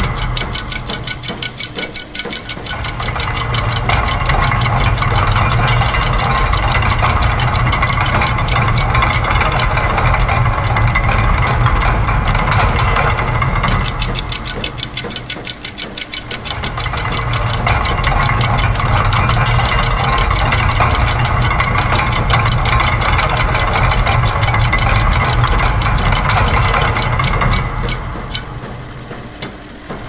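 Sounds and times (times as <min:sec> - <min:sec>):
fast mechanical clicks: 0:00.0 - 0:30.0
low machine hum: 0:00.0 - 0:30.0.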